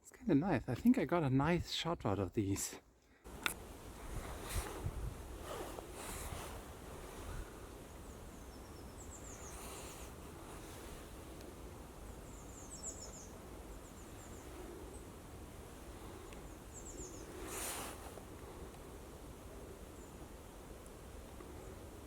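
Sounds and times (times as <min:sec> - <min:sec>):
rustle: 0:03.2 - 0:22.0
wind rumble: 0:03.3 - 0:22.0
songbird calls: 0:07.4 - 0:15.3, 0:15.9 - 0:18.0.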